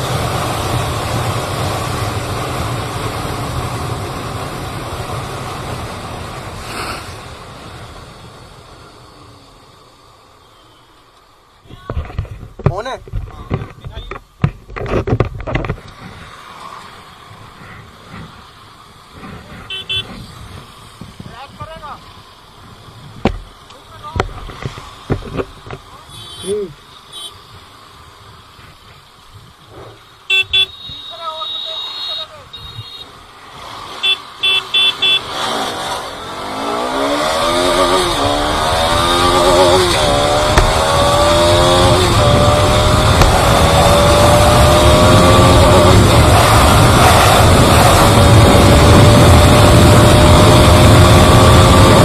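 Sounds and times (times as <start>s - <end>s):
road traffic noise: 0.0s - 52.0s
vehicle horn beeping: 10.4s - 11.1s, 19.6s - 20.3s, 26.1s - 27.5s, 30.3s - 33.2s, 34.0s - 35.4s
motorcycle engine accelerating: 35.2s - 52.0s
wind rush: 37.4s - 52.0s.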